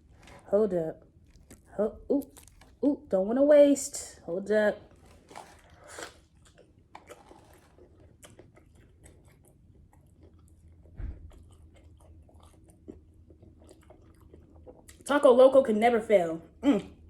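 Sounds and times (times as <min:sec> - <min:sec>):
person chewing food: 0:00.0 - 0:02.9, 0:04.8 - 0:15.1
low thump: 0:10.9 - 0:11.4.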